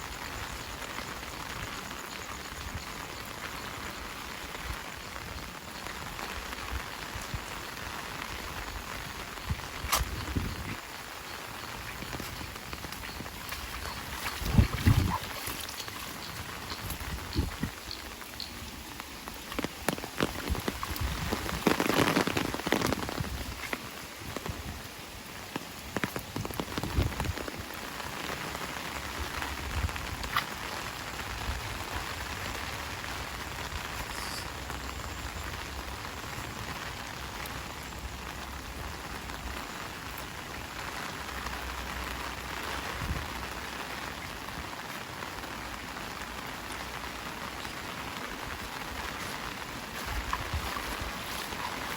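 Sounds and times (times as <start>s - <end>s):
heavy rain falling: 0.0s - 51.9s
spatters and drips: 1.0s - 24.8s, 25.4s - 32.4s, 44.3s - 51.9s.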